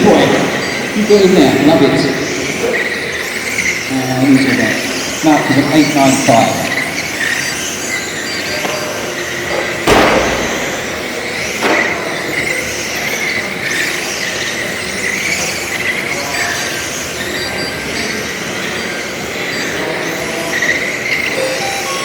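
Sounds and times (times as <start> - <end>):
radio-controlled cars whining: 0.0 - 22.0
sharp knock: 9.9 - 11.0.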